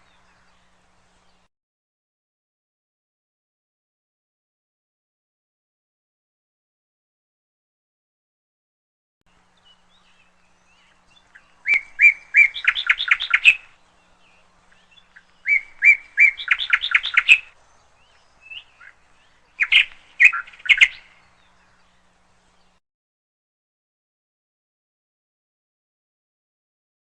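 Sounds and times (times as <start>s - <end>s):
canary chirping: 11.7s - 13.8s, 14.8s - 17.6s, 19.6s - 21.1s.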